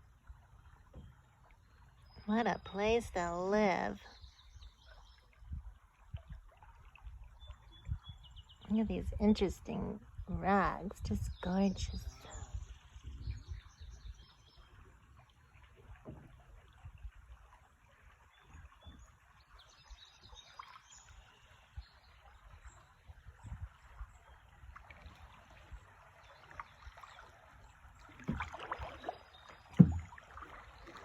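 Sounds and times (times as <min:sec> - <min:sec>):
water splashing around kayak: 0:00.0 - 0:31.0
river water flowing: 0:13.8 - 0:31.0.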